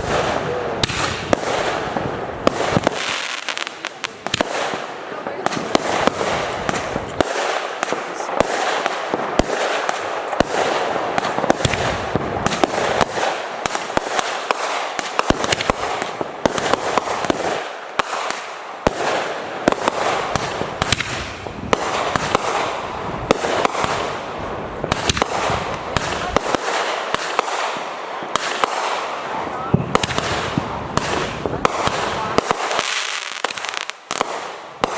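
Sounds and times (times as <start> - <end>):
fireworks bangs and pops: 0.0 - 34.9.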